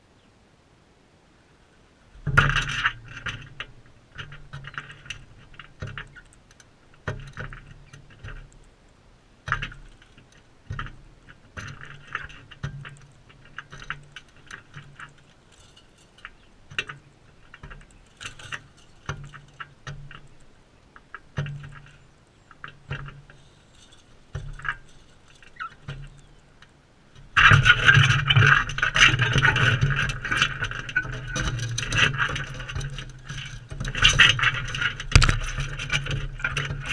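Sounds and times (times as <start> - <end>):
beaks and claws scraping feeder: 2.5 - 8.8, 9.4 - 36.9
rattling: 27.2 - 36.9.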